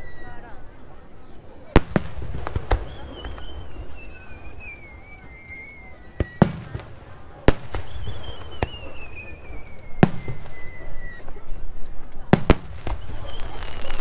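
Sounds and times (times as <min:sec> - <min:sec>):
descending firework whistle: 0:00.0 - 0:00.6, 0:02.5 - 0:07.0, 0:07.6 - 0:11.8, 0:12.8 - 0:14.0
firework crackling: 0:00.0 - 0:14.0.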